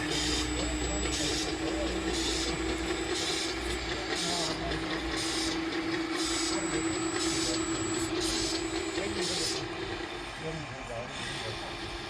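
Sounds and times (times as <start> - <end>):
electric motors humming: 0.0 - 10.5
people talking: 0.5 - 2.8, 3.9 - 5.0, 6.4 - 9.6, 10.4 - 11.8.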